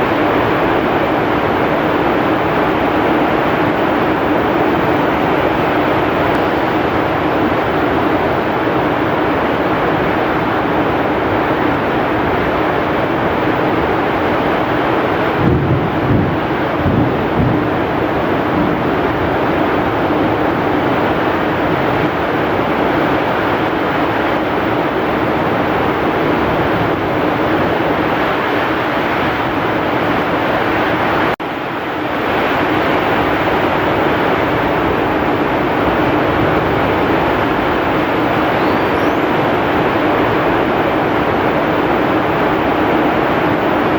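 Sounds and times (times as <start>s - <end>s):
heavy rain pouring: 0.0s - 43.9s
strong wind: 0.0s - 43.9s.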